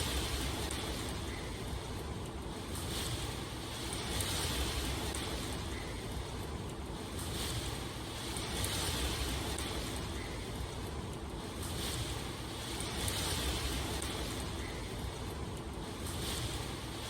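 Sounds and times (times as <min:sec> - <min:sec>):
heavy rain hissing: 0:00.0 - 0:17.0.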